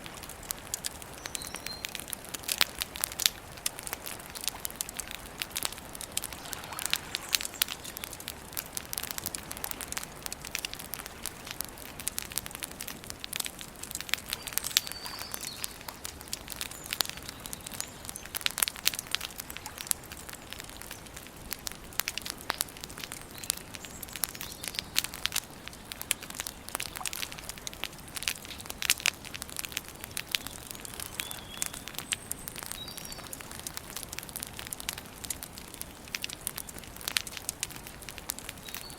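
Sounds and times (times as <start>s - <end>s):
campfire crackling and snapping: 0.0s - 38.9s
faint bird chirps: 1.2s - 2.0s, 14.3s - 18.4s, 30.4s - 33.4s.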